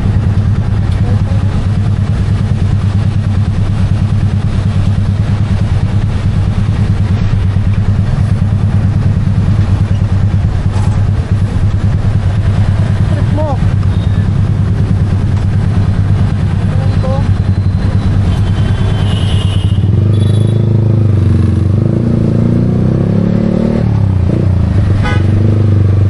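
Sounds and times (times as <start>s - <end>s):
motorcycle engine idling: 0.0s - 20.7s.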